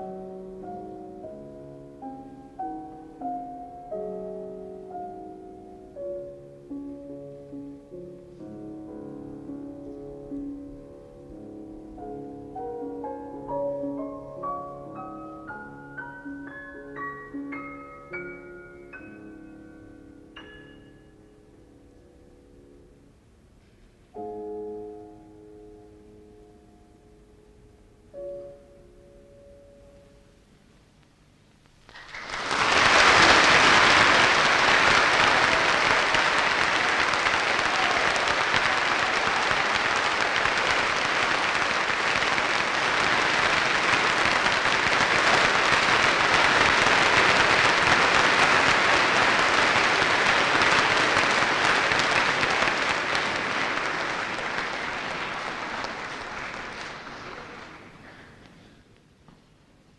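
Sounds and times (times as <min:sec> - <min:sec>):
audience applauding: 0:31.9 - 0:58.6.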